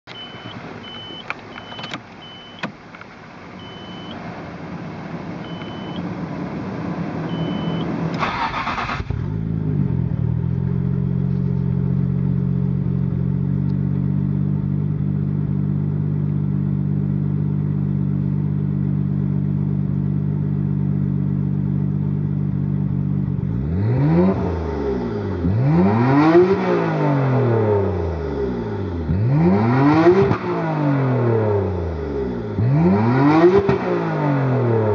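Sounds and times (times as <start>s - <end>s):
short high beeps: 0.1s - 2.7s, 3.6s - 4.2s, 5.4s - 6.0s, 7.3s - 7.9s
car engine starting and revving: 0.2s - 34.9s.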